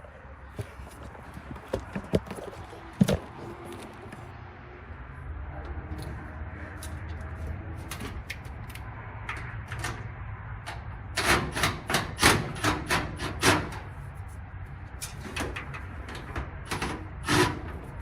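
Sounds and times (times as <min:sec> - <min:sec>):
knocks and clicks of dryer parts: 0:10.7 - 0:13.8.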